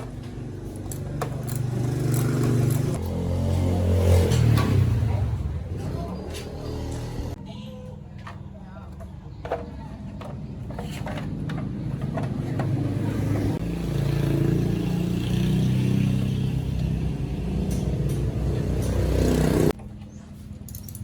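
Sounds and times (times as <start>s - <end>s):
small motorbike engine running: 0.0s - 7.4s, 11.2s - 20.2s.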